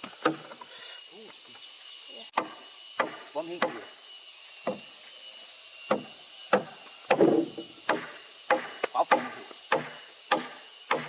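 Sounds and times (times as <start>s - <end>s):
wood being chopped: 0.0s - 0.5s, 2.4s - 3.8s, 4.6s - 4.8s, 5.9s - 11.0s.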